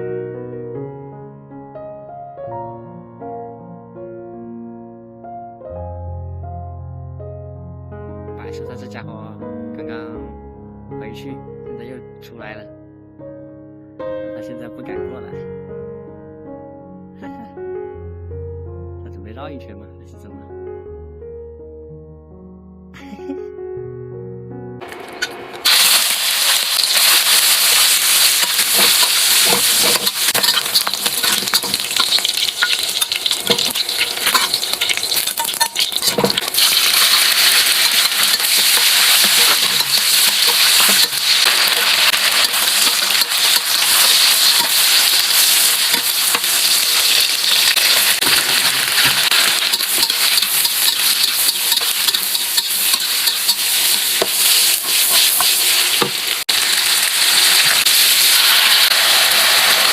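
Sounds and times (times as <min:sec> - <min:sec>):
food sizzling in a hot pan: 0:24.8 - 0:59.9
spatula scraping pan: 0:26.5 - 0:56.3.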